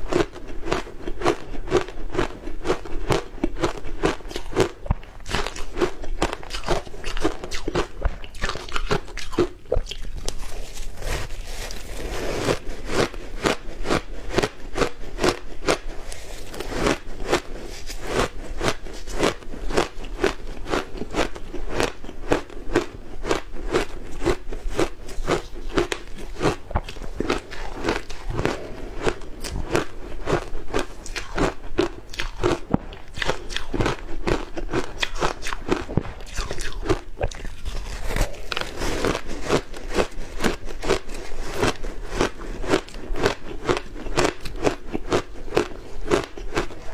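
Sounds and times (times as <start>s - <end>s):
ice being crunched: 10.2s - 12.6s.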